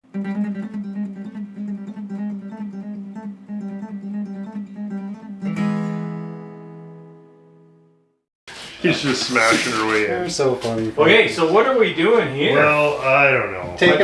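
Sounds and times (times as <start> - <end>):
plucked guitar notes: 0.0 - 7.3.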